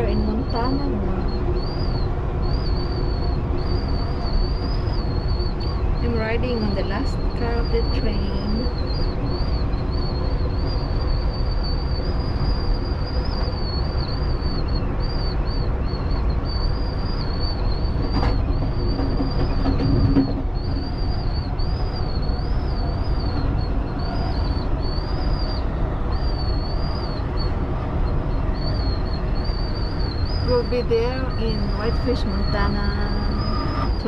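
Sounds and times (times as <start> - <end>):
faint wavering high whine: 0.0 - 34.0
train wheels rumbling on rails: 0.0 - 34.0.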